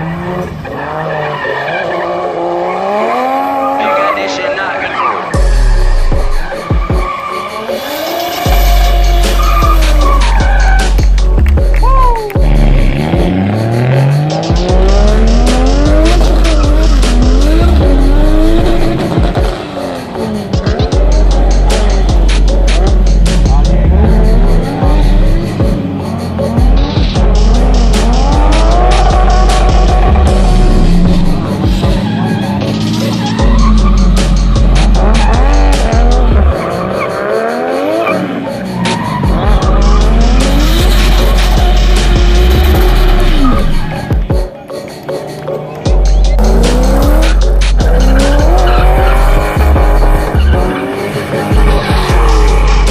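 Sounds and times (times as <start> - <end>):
car engine revving hard: 0.0 - 4.0, 12.4 - 43.8, 46.3 - 52.9
bass-heavy background music: 0.0 - 52.9
tyres squealing: 6.3 - 11.2, 31.6 - 44.4, 46.0 - 52.9.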